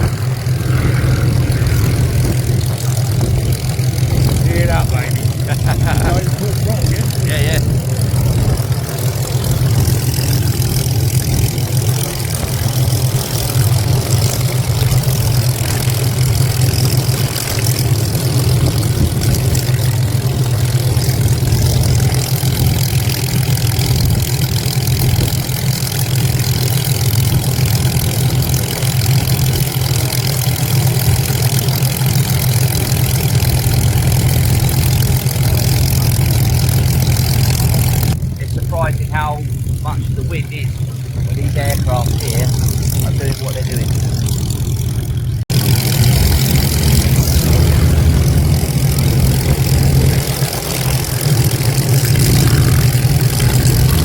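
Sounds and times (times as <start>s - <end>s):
wind buffeting microphone: 0.0s - 27.9s
piston aircraft engine running: 0.0s - 54.0s.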